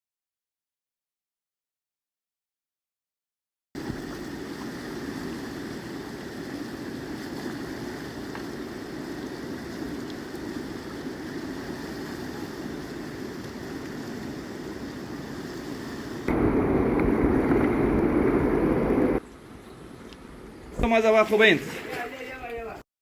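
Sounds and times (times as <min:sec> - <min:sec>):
river water rushing: 0:03.8 - 0:19.2.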